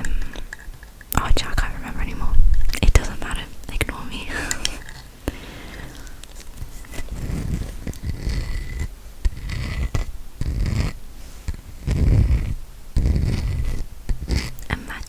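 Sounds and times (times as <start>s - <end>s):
rubbing scratches near microphone: 6.4s - 14.7s.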